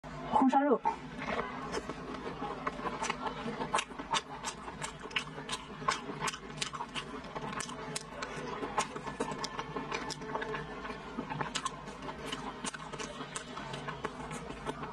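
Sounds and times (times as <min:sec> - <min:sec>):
close chewing mouth clicks: 0:00.8 - 0:14.9.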